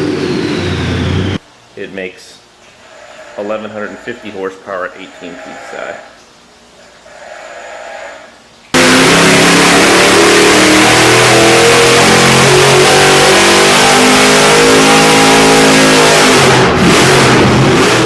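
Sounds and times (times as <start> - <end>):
car engine at high revs: 0.0 - 1.4, 8.7 - 18.0.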